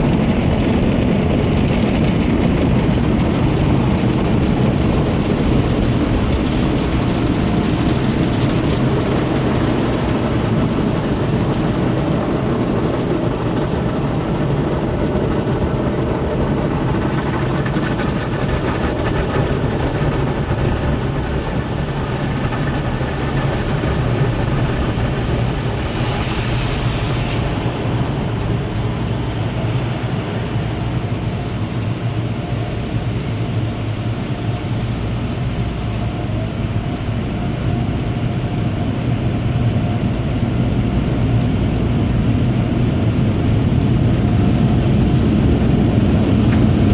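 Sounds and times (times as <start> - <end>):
car wash machinery rumbling: 0.0 - 46.9
hissing water spray: 19.2 - 33.2.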